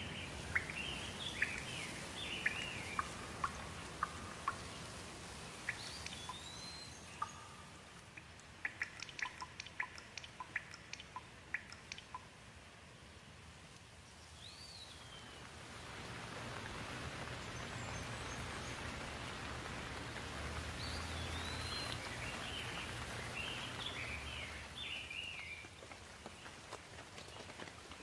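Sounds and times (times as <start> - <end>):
bird chirping: 0.0 - 12.3, 14.2 - 15.5, 20.6 - 25.7.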